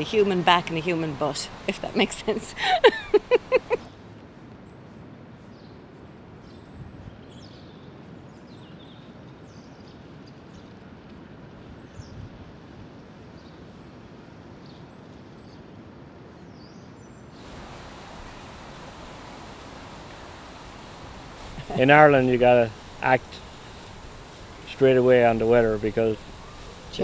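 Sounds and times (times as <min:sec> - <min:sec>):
background hiss: 0:00.0 - 0:03.9, 0:17.4 - 0:27.0
small birds chirping: 0:16.6 - 0:27.0.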